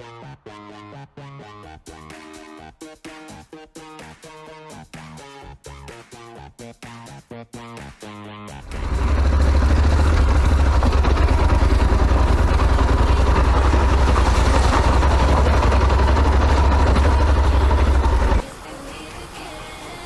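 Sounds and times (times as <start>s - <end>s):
motorcycle engine rumbling: 8.6s - 18.4s.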